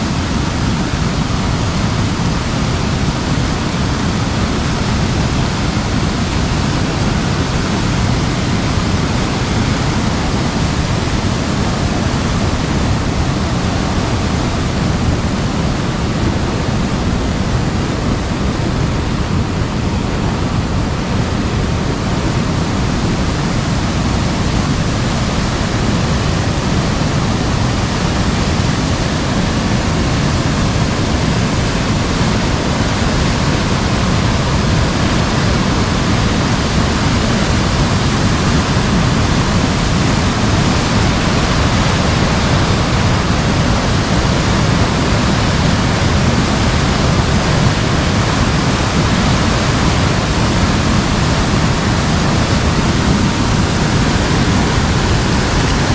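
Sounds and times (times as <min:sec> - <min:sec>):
heavy rain on umbrella: 0:21.0 - 0:55.9.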